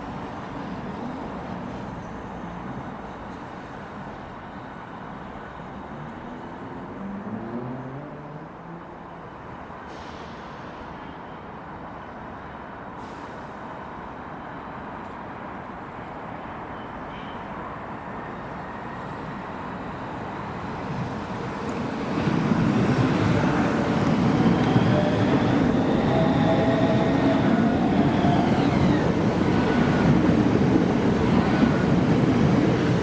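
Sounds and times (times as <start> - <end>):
train wheels rumbling on rails: 20.3 - 33.0.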